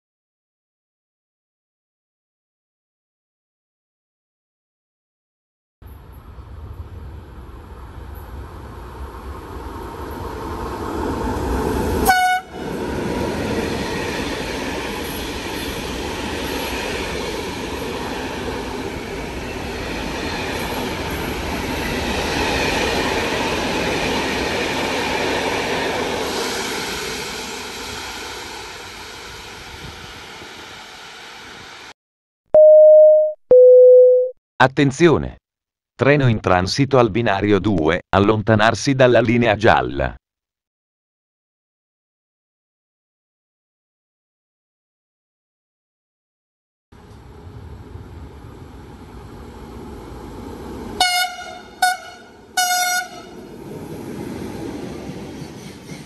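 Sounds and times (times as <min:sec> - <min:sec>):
train passing rumble: 0:05.9 - 0:31.9, 0:47.0 - 0:56.0
train horn blast: 0:12.0 - 0:12.7, 0:51.0 - 0:53.4.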